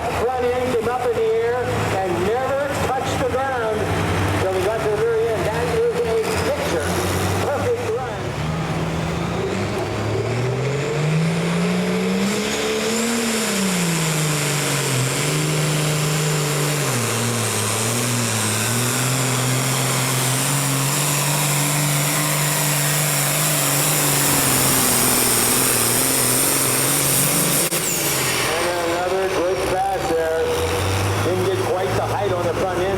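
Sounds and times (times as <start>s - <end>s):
pulling vehicle engine under load: 0.0s - 32.9s.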